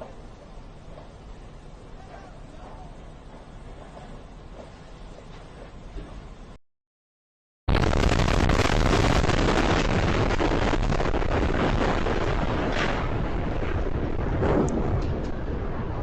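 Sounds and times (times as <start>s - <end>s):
rumbling roar of fire: 7.7s - 16.0s
wind buffeting microphone: 7.8s - 16.0s.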